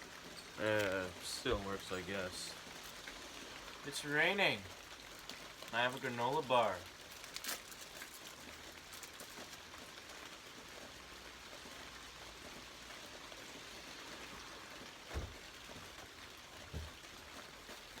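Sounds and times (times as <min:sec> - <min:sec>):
rain falling: 0:00.0 - 0:18.0
dull low thump: 0:15.1 - 0:15.5, 0:16.7 - 0:17.0.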